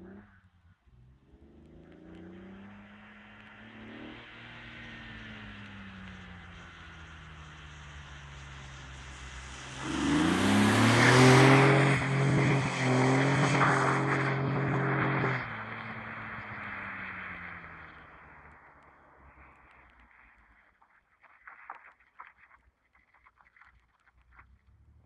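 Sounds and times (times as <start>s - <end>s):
tyres hissing on wet tarmac: 2.3s - 18.5s
car engine revving hard: 9.8s - 18.0s.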